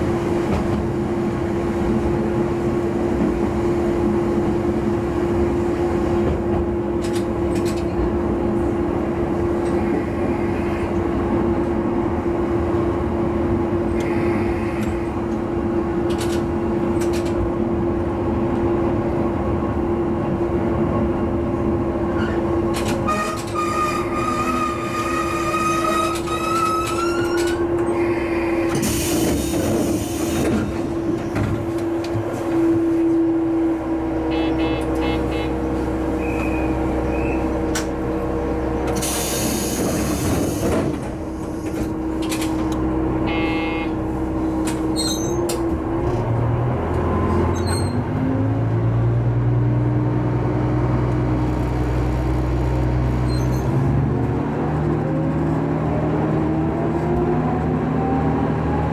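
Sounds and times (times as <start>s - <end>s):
diesel railcar engine hum: 0.0s - 58.9s.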